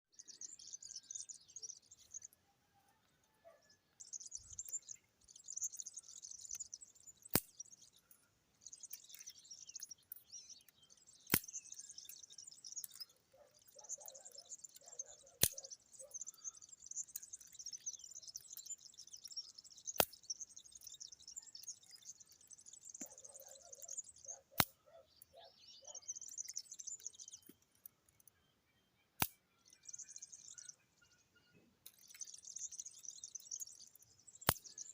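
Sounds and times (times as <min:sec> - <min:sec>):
birds chirping and twittering: 0:00.0 - 0:34.9
sharp click: 0:07.3 - 0:07.6, 0:10.6 - 0:11.8, 0:15.4 - 0:15.7, 0:20.0 - 0:20.2, 0:24.6 - 0:24.8, 0:29.2 - 0:29.4, 0:34.4 - 0:34.7.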